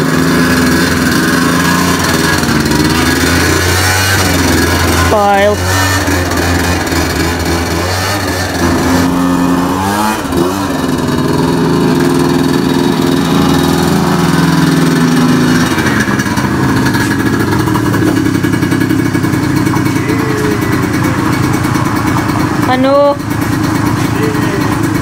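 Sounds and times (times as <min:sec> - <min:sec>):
motor engine running: 0:00.0 - 0:25.0.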